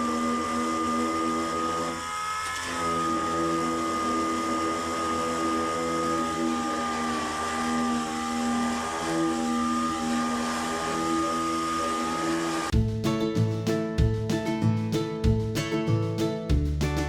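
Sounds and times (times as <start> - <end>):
power sander whining: 0.0 - 12.8
guitar music: 12.7 - 17.0.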